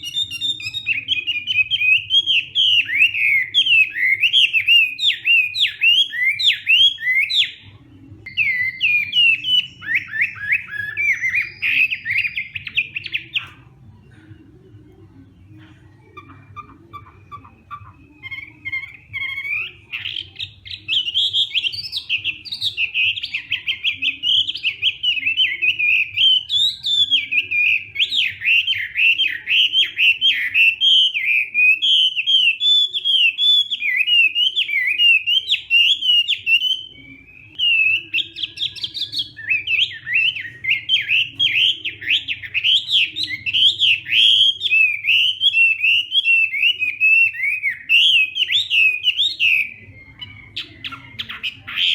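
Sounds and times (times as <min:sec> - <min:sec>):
bird singing whistled phrases: 0:00.0 - 0:13.6, 0:16.2 - 0:51.9
faint low hum: 0:00.0 - 0:31.2.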